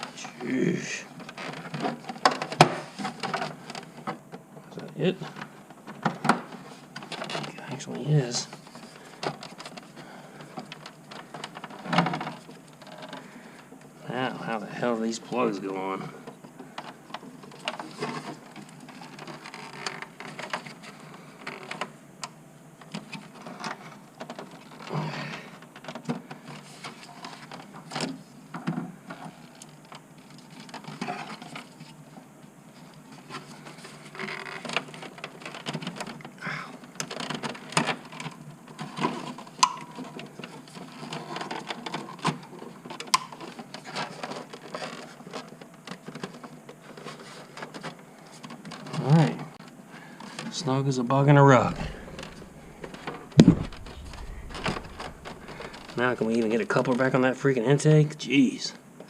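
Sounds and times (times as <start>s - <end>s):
rustling of wires: 51.3s - 57.2s.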